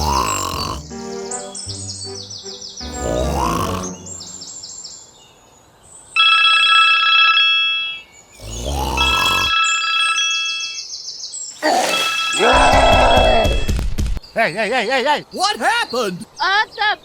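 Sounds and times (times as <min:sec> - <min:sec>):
electronic ringing tone: 0:09.5 - 0:10.8.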